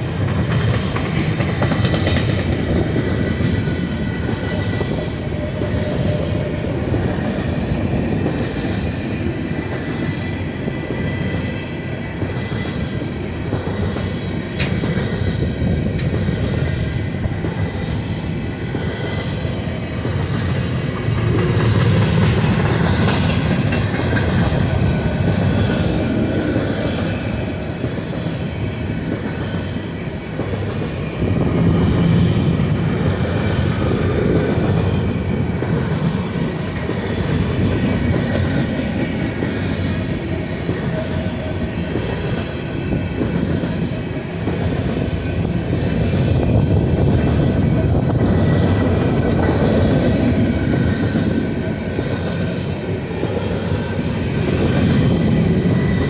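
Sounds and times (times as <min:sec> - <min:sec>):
freight train rolling past: 0:00.0 - 0:56.0
clatter over rail joints: 0:12.2 - 0:16.4.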